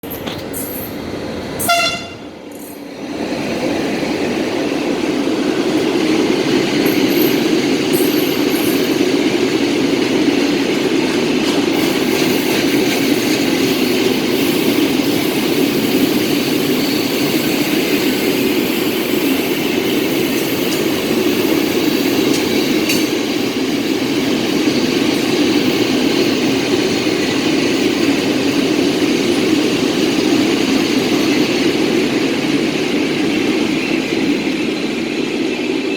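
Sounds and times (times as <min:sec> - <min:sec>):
freight train rumbling: 0:00.0 - 0:35.9.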